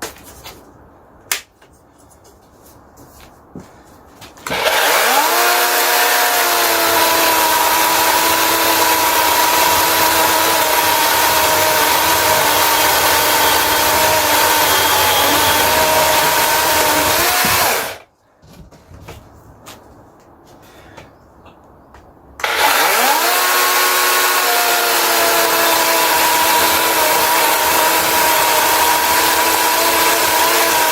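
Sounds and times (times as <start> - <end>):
electric chainsaw cutting log: 4.4 - 18.0, 22.4 - 30.9.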